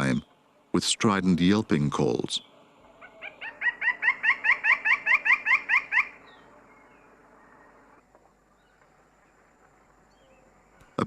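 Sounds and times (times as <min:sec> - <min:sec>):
woodpecker yelping calls: 0:02.4 - 0:08.0.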